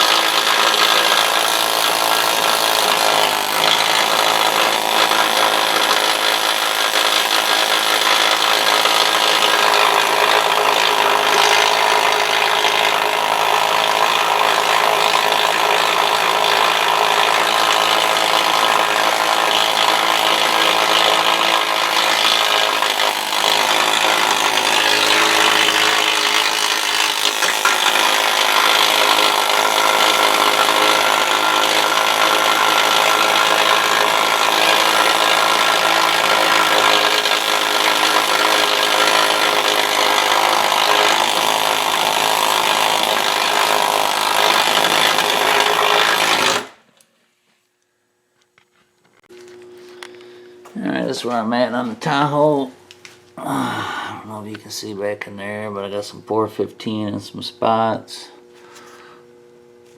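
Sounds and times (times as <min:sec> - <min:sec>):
power grinder grinding metal: 0:00.0 - 0:46.8.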